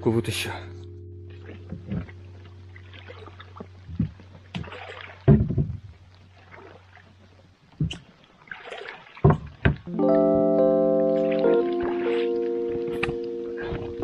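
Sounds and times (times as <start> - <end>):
steady low hum: 0.0 - 6.4
water splashing: 1.4 - 9.9.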